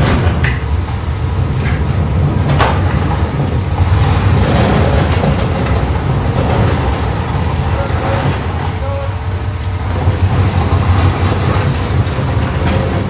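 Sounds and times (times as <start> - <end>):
metallic clanks and rattles: 9.9 - 13.0.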